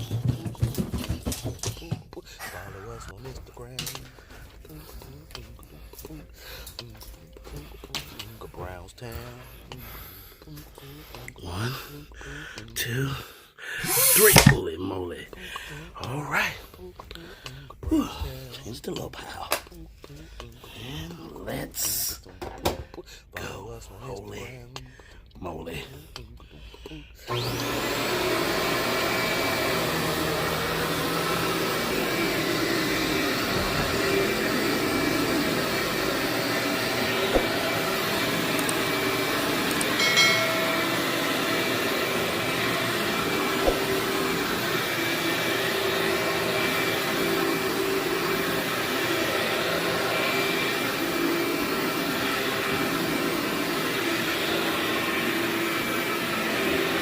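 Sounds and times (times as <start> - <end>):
vacuum cleaner on carpet: 0.0 - 11.9, 13.8 - 16.7, 27.3 - 57.0.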